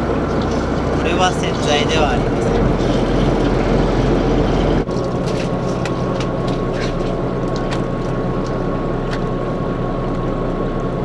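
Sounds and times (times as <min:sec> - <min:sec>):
thin steady whine: 0:00.0 - 0:04.9
boat engine running: 0:00.0 - 0:11.0.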